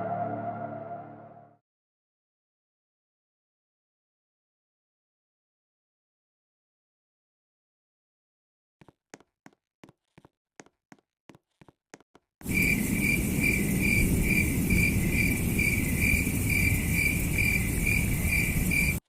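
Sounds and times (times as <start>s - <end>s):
cricket chirping: 12.4s - 19.0s
steady hiss: 12.4s - 19.0s.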